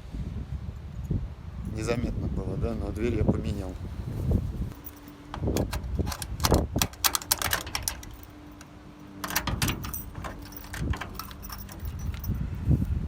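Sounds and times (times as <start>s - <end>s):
keys jangling: 4.7s - 12.6s
rapid metallic clicking: 5.3s - 12.3s.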